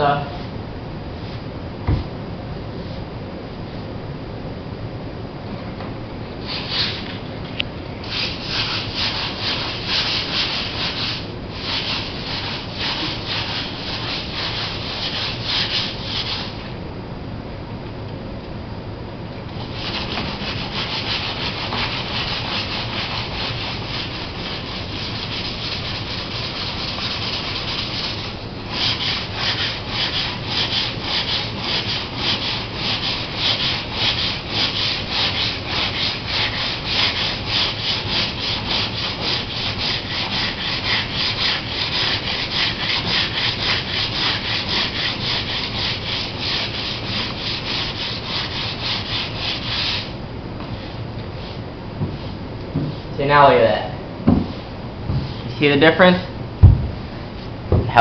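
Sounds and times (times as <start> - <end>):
sandpaper rubbing on fiberglass: 6.4 - 7.2, 8.0 - 16.7, 19.6 - 50.2.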